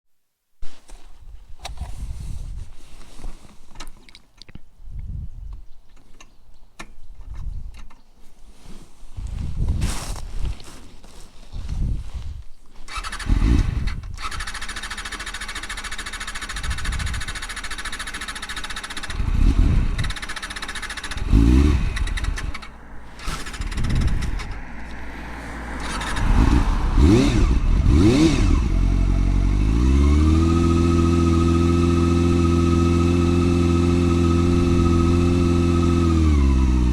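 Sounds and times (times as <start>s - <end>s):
motorcycle engine revving: 12.9s - 36.9s.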